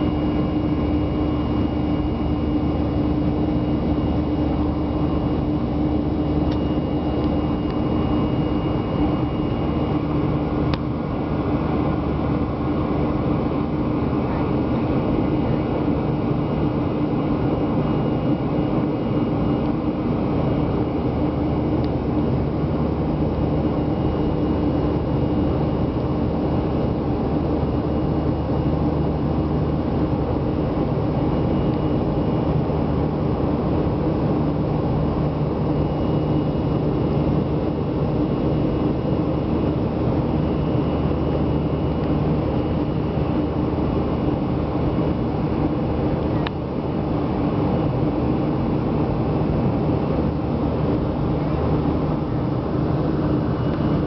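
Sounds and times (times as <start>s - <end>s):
airliner cabin engine drone: 0.0s - 54.0s.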